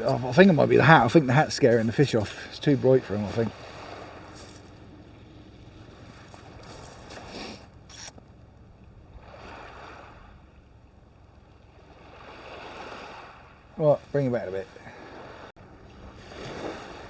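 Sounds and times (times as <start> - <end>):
small waves washing on beach: 0.0 - 8.2, 9.0 - 17.0
microphone handling rustles: 4.3 - 4.8, 6.1 - 8.3.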